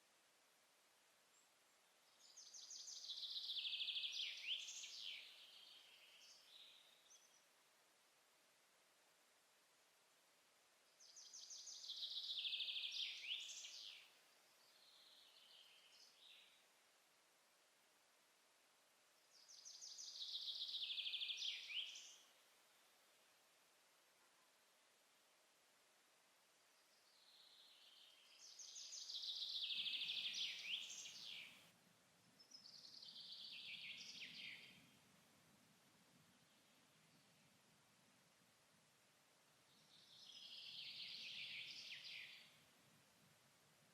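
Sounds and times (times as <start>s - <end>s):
songbird singing trills: 2.1s - 7.4s, 11.0s - 16.6s, 19.3s - 22.3s, 26.8s - 31.6s, 32.3s - 34.9s, 39.7s - 42.6s
songbird trilled song: 26.8s - 31.6s.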